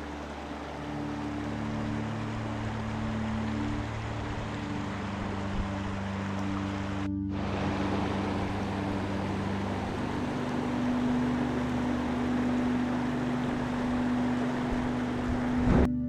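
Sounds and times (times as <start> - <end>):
steady rushing noise: 0.0 - 15.9
ambient music: 0.0 - 16.0.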